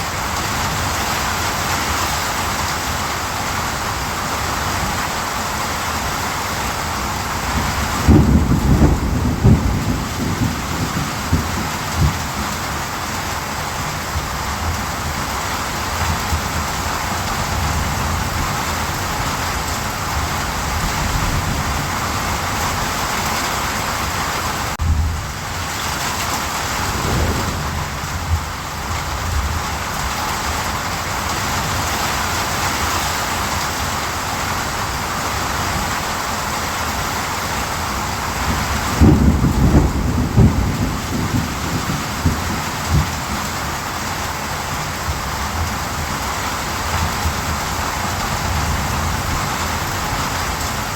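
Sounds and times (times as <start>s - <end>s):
steady rain: 0.0s - 50.9s
thunder rolling: 26.4s - 29.9s.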